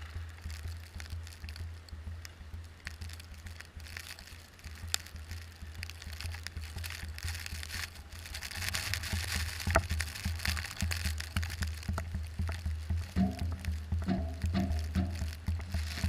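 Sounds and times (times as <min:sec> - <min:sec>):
car driving rumble: 0:00.0 - 0:16.0
tyres crunching snow: 0:00.0 - 0:16.0
music: 0:10.4 - 0:16.0.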